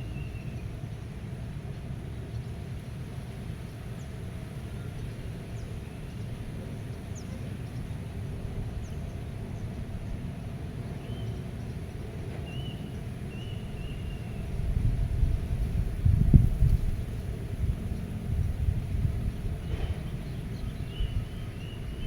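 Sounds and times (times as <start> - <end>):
wind rumble: 14.1 - 22.0.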